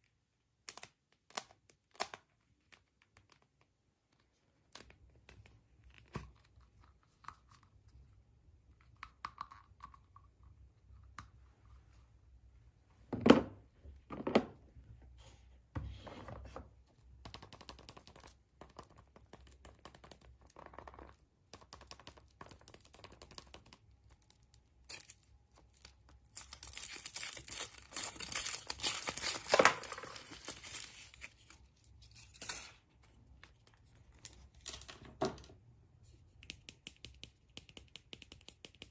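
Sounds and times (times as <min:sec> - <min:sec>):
wrapping tearing and crinkling: 0:24.8 - 0:32.8.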